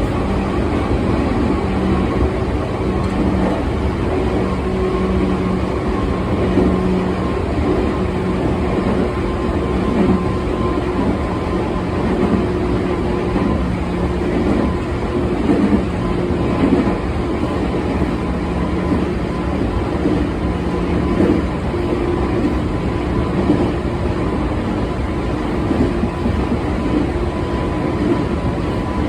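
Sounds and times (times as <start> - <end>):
loud train bumps: 0.0 - 29.0
train wheels rumbling on rails: 0.0 - 29.0.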